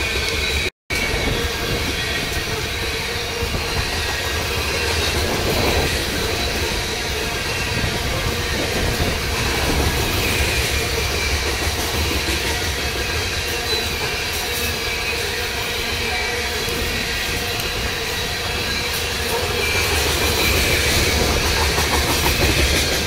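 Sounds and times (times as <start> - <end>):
high wheel squeal: 0.0 - 23.0
train wheels rumbling on rails: 0.0 - 23.0.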